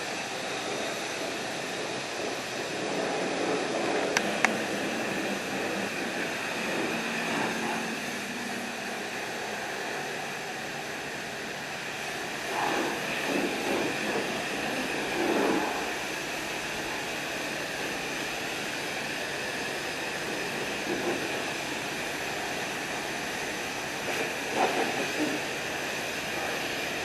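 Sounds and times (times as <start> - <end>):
pressure washer spraying water: 0.0 - 27.0.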